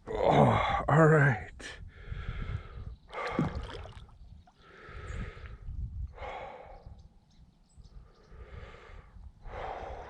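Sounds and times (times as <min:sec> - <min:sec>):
person breathing heavily: 0:01.8 - 0:03.8, 0:04.6 - 0:07.0, 0:08.0 - 0:10.0.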